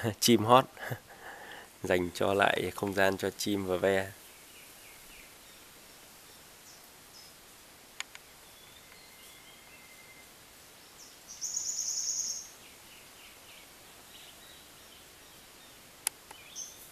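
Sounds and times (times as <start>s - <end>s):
birds calling: 8.0s - 16.9s
fast buzzing bird trill: 11.3s - 12.6s.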